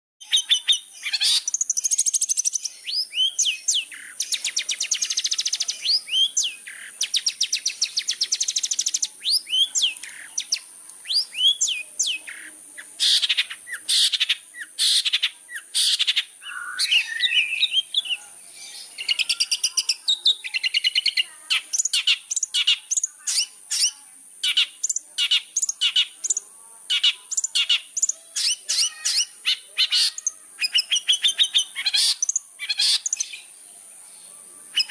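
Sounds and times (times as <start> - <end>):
bird singing varied song: 0.2 - 34.9.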